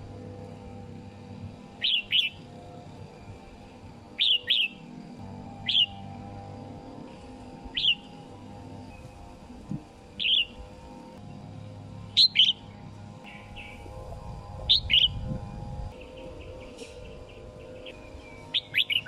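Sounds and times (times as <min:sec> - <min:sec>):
low hum: 0:00.0 - 0:19.0
bird chirping: 0:01.8 - 0:02.4, 0:04.2 - 0:04.9, 0:05.6 - 0:06.0, 0:07.7 - 0:08.2, 0:10.2 - 0:10.6, 0:12.2 - 0:13.9, 0:14.7 - 0:15.3, 0:16.0 - 0:19.0.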